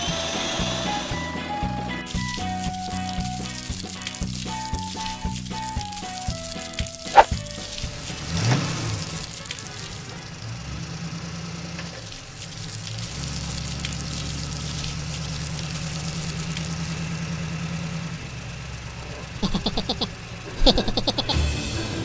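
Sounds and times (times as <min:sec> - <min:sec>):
vehicle engine idling: 0:02.2 - 0:21.7.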